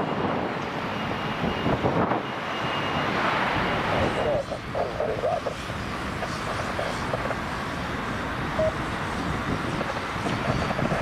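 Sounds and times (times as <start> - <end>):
distant jet engines roaring: 0.0 - 11.0
short beep: 8.6 - 8.8.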